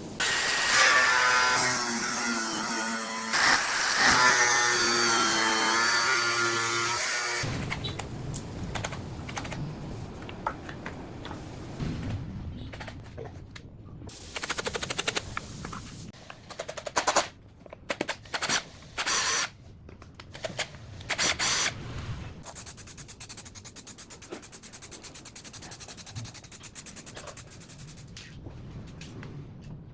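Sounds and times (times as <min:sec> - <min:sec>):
rapid clicking of workshop tool: 0:14.1 - 0:15.4, 0:22.4 - 0:28.0.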